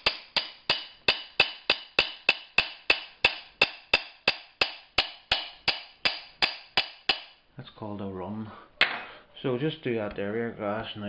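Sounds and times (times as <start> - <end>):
glass cutter tapping on glass: 0.0 - 7.4.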